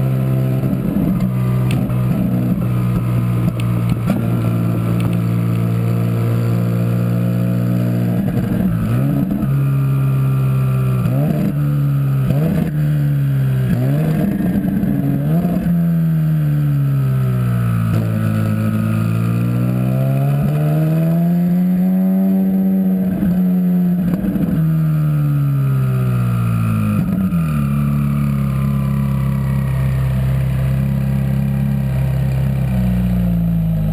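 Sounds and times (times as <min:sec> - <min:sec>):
car engine revving: 0:00.0 - 0:24.7.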